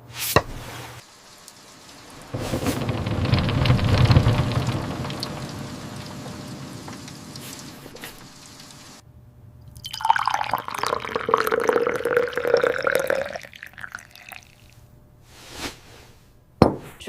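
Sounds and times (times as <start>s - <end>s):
water dripping: 1.0s - 9.0s, 9.7s - 14.8s
water pouring into a vessel: 1.0s - 9.0s, 9.8s - 14.8s
soft swish: 15.3s - 16.1s.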